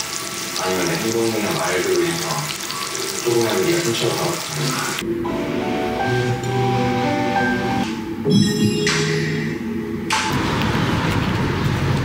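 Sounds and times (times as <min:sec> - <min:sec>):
background music: 0:05.0 - 0:10.7.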